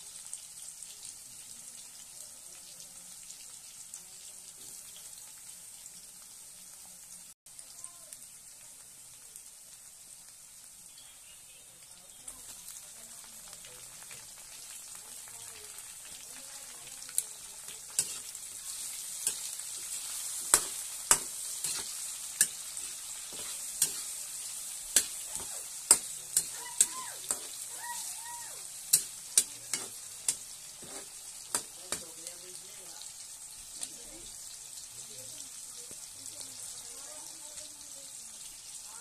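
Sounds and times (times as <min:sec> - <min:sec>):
food sizzling in hot oil: 0:00.0 - 0:39.0
spatula scraping a pan: 0:17.2 - 0:32.0.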